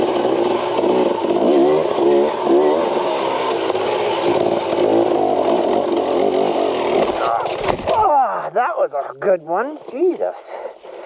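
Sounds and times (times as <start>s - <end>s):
dirt bike engine revving: 0.0s - 8.0s.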